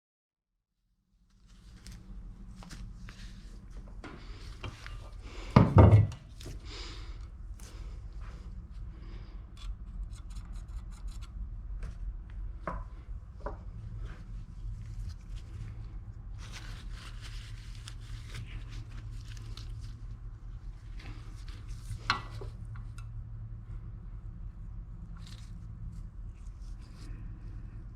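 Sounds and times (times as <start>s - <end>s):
faint steady hum: 1.2s - 27.9s
rubbing or scraping: 14.1s - 20.2s.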